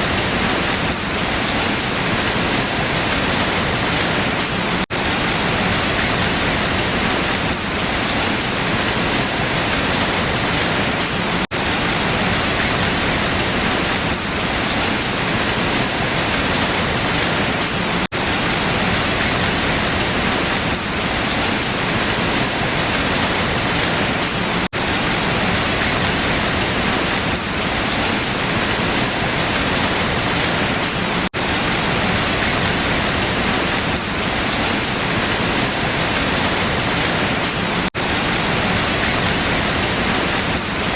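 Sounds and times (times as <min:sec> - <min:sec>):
heavy rain on leaves: 0:00.0 - 0:40.9.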